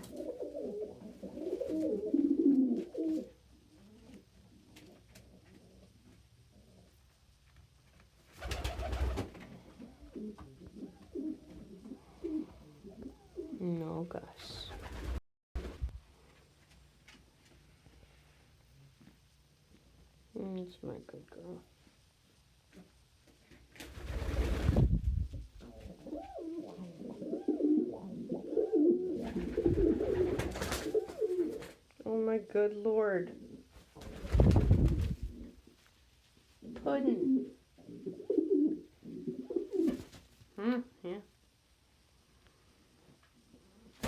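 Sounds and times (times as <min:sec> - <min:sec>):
pigeons cooing: 0:00.0 - 0:05.9, 0:08.5 - 0:13.6, 0:25.6 - 0:31.7, 0:37.2 - 0:40.1.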